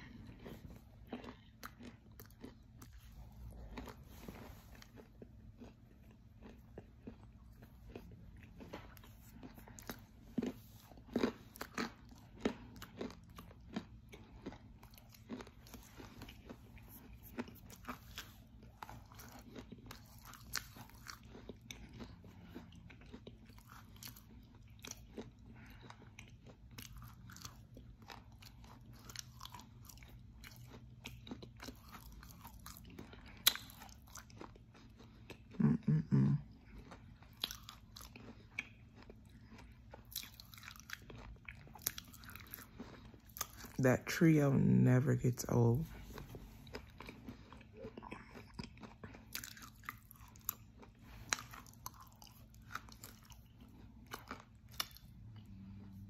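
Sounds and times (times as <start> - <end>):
crunching and chewing clay: 0.0 - 44.2, 45.8 - 56.0
low throat sound: 35.6 - 36.4.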